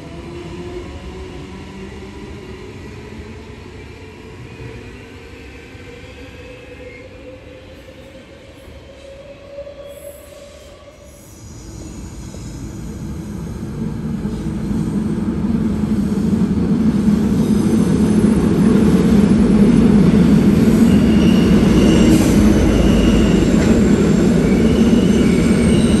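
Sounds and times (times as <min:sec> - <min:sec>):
train rumbling on rails: 0:10.3 - 0:26.0.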